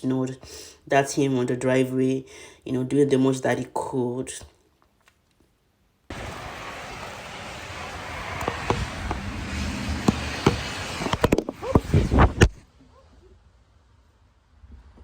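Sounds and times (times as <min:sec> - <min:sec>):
snow shovel scraping: 0:06.1 - 0:12.6.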